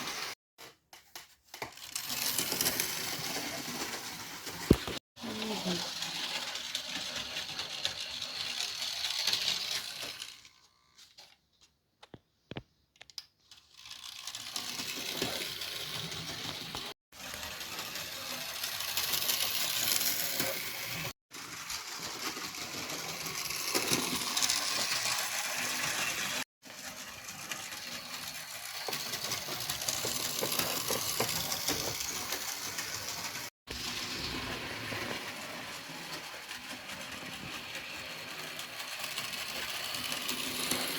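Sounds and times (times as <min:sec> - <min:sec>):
model train rattling on rails: 0:05.3 - 0:10.4, 0:13.7 - 0:40.9.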